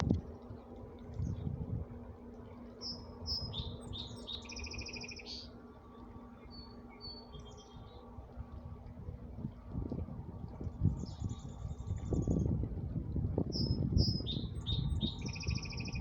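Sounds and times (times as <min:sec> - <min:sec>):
songbird singing: 0:02.8 - 0:08.1, 0:13.5 - 0:16.0.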